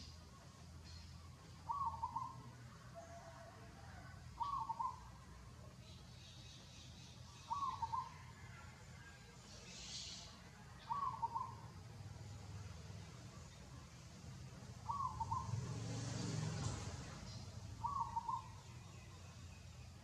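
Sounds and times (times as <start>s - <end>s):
bird call: 1.6s - 3.4s, 4.4s - 5.1s, 6.8s - 8.6s, 9.7s - 11.7s, 14.8s - 15.7s, 17.3s - 19.1s.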